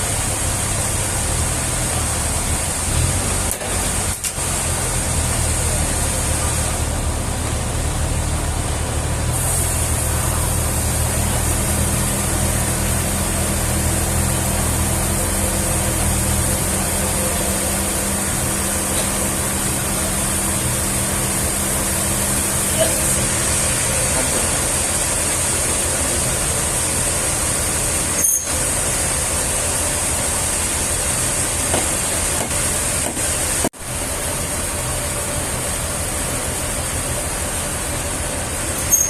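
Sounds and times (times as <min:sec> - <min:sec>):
engine running: 0:00.0 - 0:39.0.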